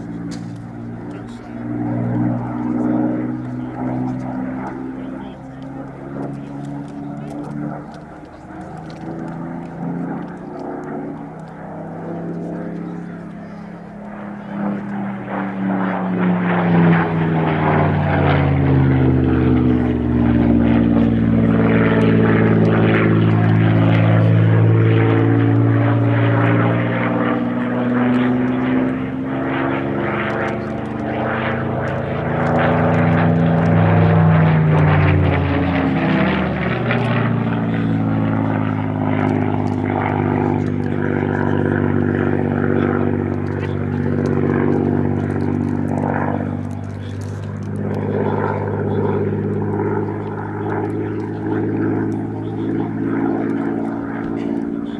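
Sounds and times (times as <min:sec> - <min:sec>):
propeller plane engine flying past: 0:00.0 - 0:54.9.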